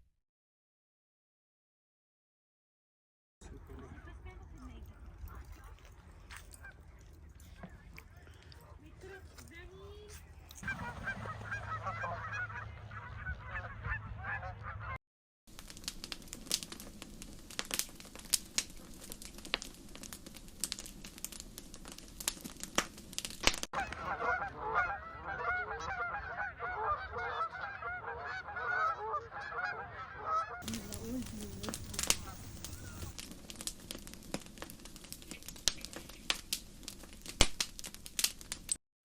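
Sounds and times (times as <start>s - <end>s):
crackling noise with clicks: 4.0s - 8.6s, 15.5s - 24.1s, 30.6s - 38.8s
geese honking: 6.5s - 7.0s, 10.6s - 15.0s, 23.8s - 33.2s.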